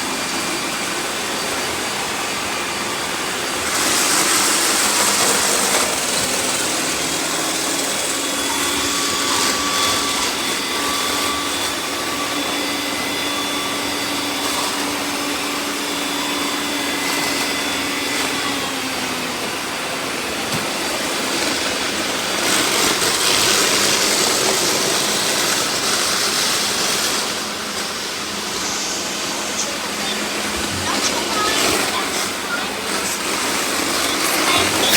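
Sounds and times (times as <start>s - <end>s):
robot vacuums whirring: 0.0s - 34.9s
steady whining tones: 27.2s - 34.9s.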